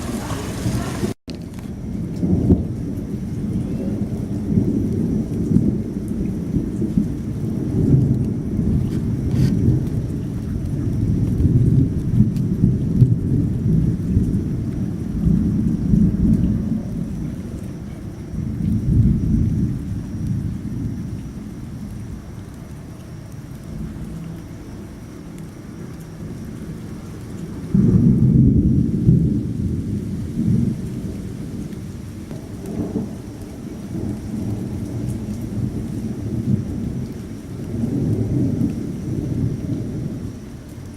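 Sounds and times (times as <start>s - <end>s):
thunder crack: 0.0s - 22.2s, 26.2s - 40.4s
steady rain: 0.0s - 40.9s
thunder rumbling: 0.0s - 40.9s.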